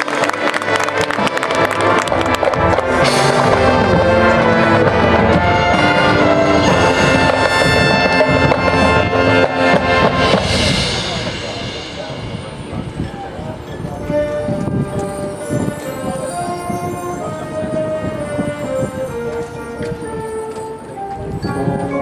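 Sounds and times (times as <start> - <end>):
loud held brass chords: 0.0 - 13.0
sharp percussion hits: 0.0 - 17.2
marching band playing: 0.0 - 22.0.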